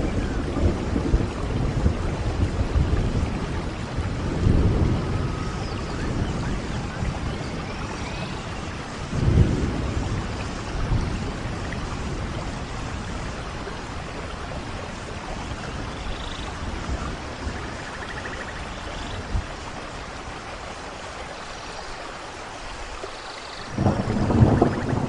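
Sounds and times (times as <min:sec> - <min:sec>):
thunder rumbling: 0:00.0 - 0:20.4, 0:23.7 - 0:25.0
steady rain: 0:00.0 - 0:25.0.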